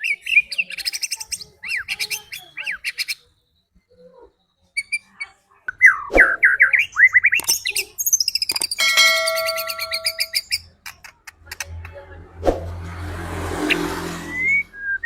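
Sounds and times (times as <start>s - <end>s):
bird singing whistles and trills: 4.5s - 10.6s
low hum: 8.8s - 10.4s.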